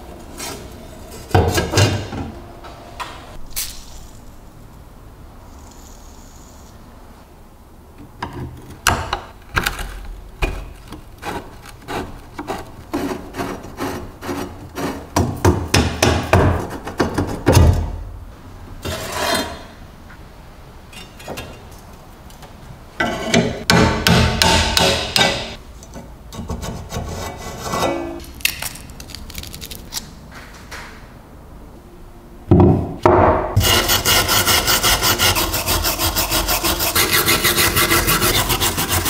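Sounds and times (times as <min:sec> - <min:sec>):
scraping rub: 0:11.1 - 0:15.1, 0:33.6 - 0:39.0.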